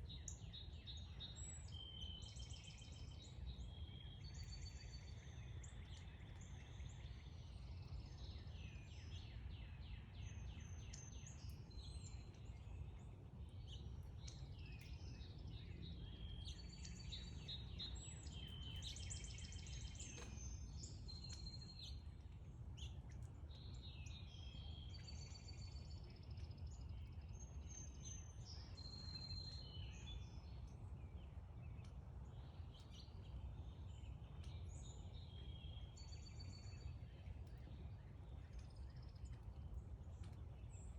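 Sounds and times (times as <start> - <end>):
songbirds chirping and singing: 0.1 - 40.9.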